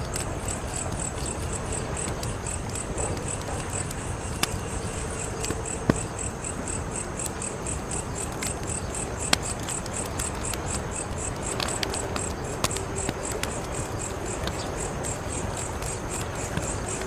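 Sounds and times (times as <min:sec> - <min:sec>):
insect chirping: 0:00.0 - 0:17.0
wood fire crackling: 0:00.0 - 0:17.0.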